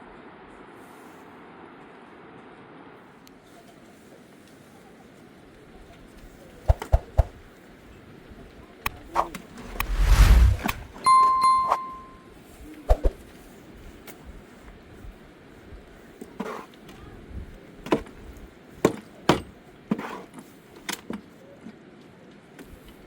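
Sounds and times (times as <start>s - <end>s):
brief rushing swell: 9.6s - 12.1s
metallic ding: 11.1s - 12.2s.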